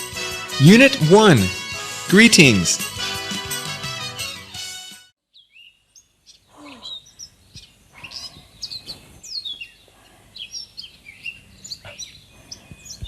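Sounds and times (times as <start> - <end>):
music: 0.0 - 5.1
birds chirping: 5.4 - 13.0.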